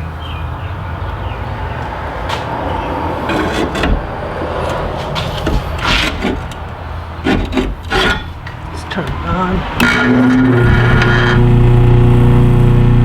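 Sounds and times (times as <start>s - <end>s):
sudden clatters: 2.2s - 11.3s
low engine-like hum: 8.4s - 13.0s.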